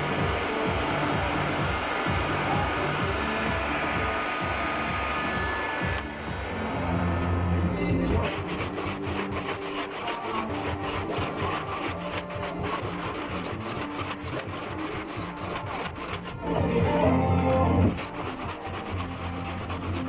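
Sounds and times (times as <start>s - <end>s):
sandpaper rubbing on metal panel: 8.1s - 16.5s, 17.8s - 20.0s.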